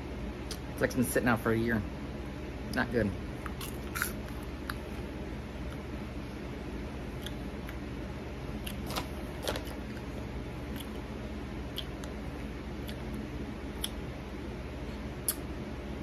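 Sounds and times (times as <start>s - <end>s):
low room hum: 0.0s - 16.0s
popcorn crunching while chewed: 3.4s - 5.9s, 7.1s - 7.9s, 8.5s - 14.0s.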